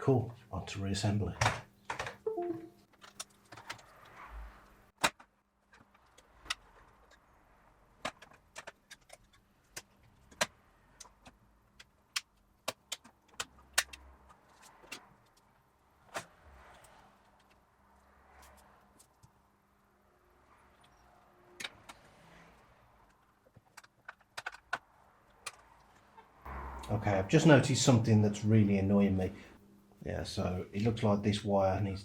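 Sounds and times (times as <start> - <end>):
plastic parts clicking and tapping: 8.0 - 17.6, 23.0 - 26.3.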